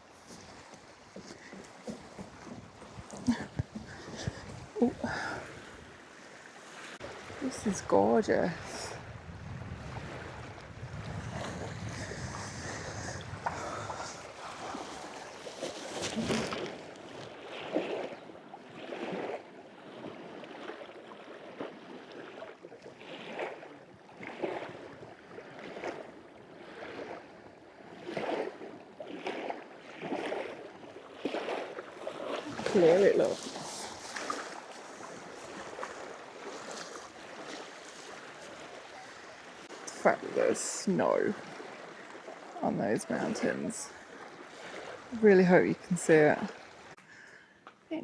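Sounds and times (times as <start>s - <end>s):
wind buffeting microphone: 0.0s - 6.0s, 7.0s - 16.9s
lake waves lapping on shore: 0.0s - 48.0s.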